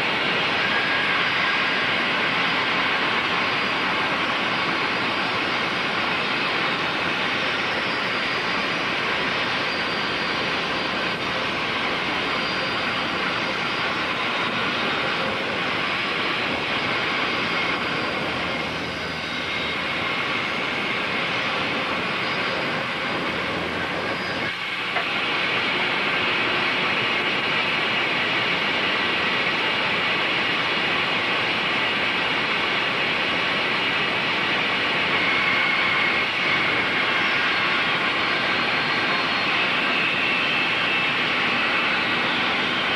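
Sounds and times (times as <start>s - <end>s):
woodworking bandsaw running: 15.9s - 25.5s.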